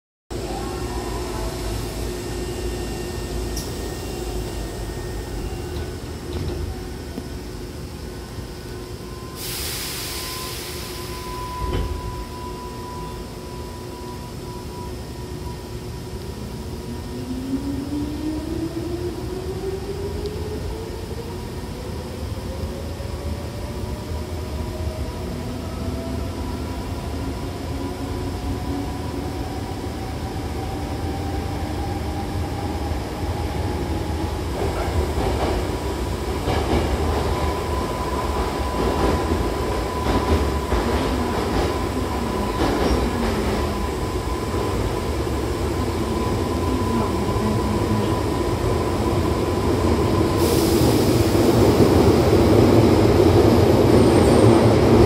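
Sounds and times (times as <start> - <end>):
train rumble: 13.4 - 55.0.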